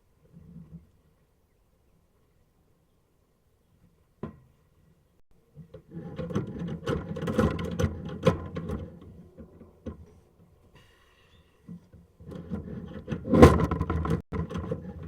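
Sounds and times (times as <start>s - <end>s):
camera cable scraping in pipe: 12.2s - 15.0s.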